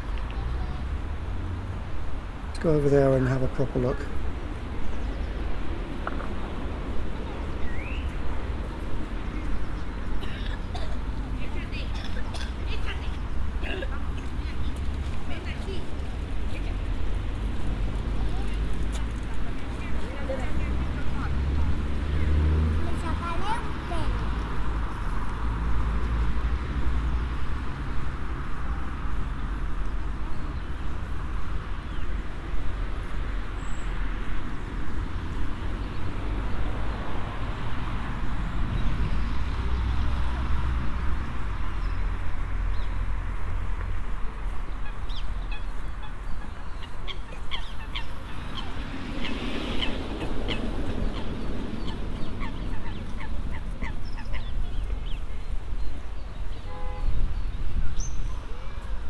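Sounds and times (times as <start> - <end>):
distant road traffic: 0.0 - 59.0
waterbirds calling: 44.3 - 59.0.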